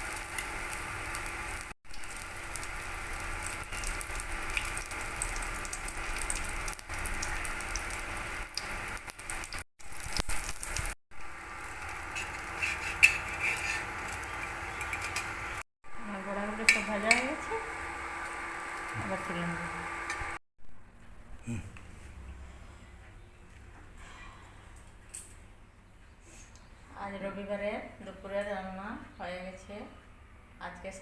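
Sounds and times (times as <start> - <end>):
fritters sizzling in oil: 0.0 - 20.4.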